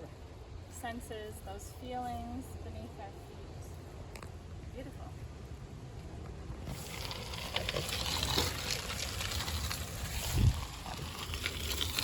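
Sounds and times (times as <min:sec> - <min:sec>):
wind rumble on microphone: 0:02.7 - 0:12.0.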